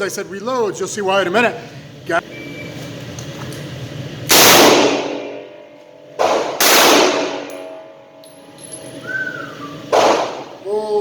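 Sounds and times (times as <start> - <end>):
handgun shots echoing: 6.2 - 7.8, 9.9 - 10.5.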